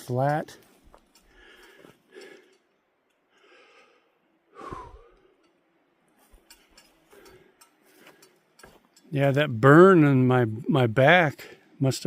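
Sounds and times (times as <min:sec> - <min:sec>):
man breathing: 0:01.1 - 0:05.5, 0:07.0 - 0:08.5
man sighing: 0:04.6 - 0:05.2.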